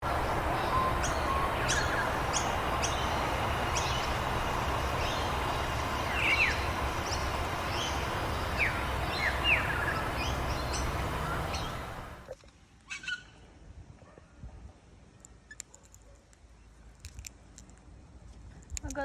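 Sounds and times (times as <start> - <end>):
birds chirping: 0.0 - 12.3
downward-sweeping bird calls: 0.0 - 12.3
low background noise: 0.0 - 12.4.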